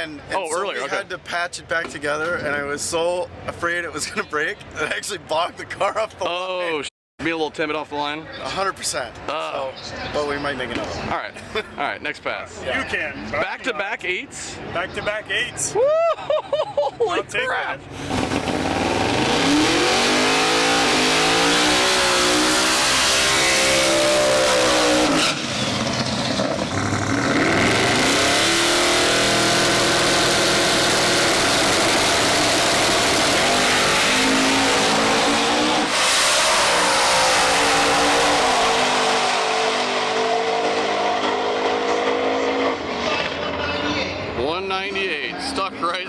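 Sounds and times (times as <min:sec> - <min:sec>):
drag racing car engine accelerating: 0:18.0 - 0:43.4.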